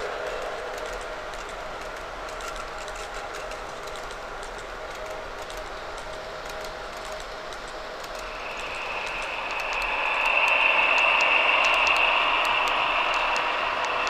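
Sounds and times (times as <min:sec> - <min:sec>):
small wheels clicking on track: 0:00.0 - 0:14.0
model train electric whine: 0:08.0 - 0:14.0.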